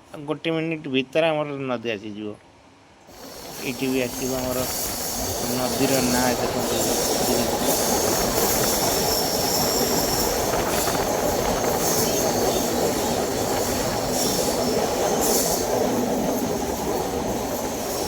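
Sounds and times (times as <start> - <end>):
train wheels rumbling: 3.1 - 18.0
high-pitched train squeal: 3.2 - 18.0.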